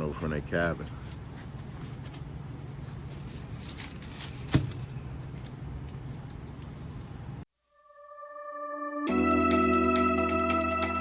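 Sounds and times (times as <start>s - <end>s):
insect chorus: 0.0s - 7.5s.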